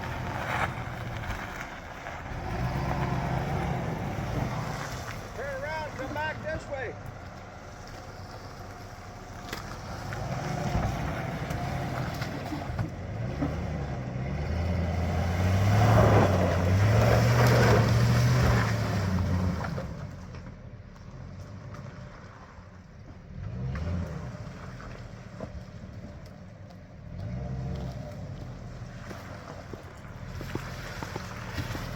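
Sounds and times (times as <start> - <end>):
truck engine revving: 0.0 - 20.4, 27.0 - 31.9.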